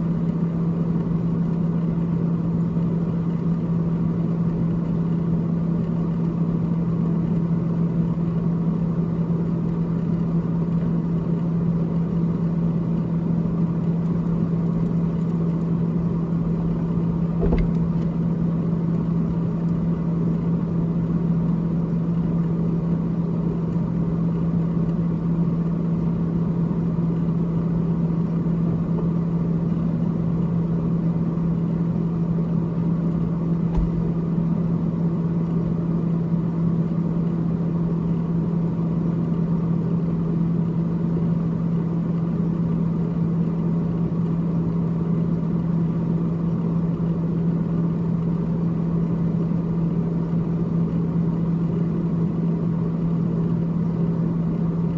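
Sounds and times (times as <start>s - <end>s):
freezer fan humming: 12.4s - 26.5s, 31.1s - 34.9s
low knock: 17.4s - 18.1s, 33.7s - 34.2s.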